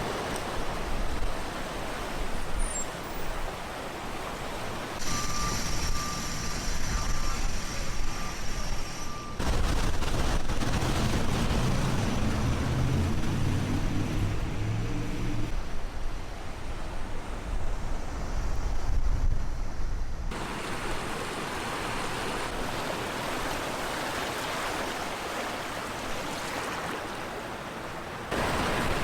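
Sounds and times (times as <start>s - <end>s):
high whine: 5.0s - 9.5s
traffic rushing: 5.0s - 15.5s
vehicle engine rumble: 5.1s - 15.6s.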